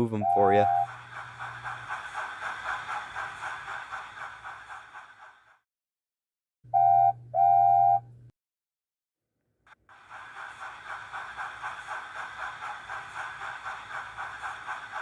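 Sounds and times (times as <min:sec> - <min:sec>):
steam train chuffing: 0:00.0 - 0:05.6, 0:09.9 - 0:15.0.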